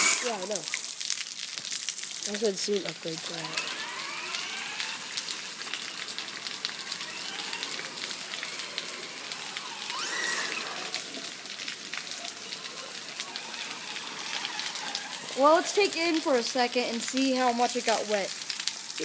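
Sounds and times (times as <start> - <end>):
electric motor whine: 0.0 - 0.7, 2.9 - 17.0
heavy rain hissing: 0.0 - 19.0
raindrop ticks: 0.0 - 19.0.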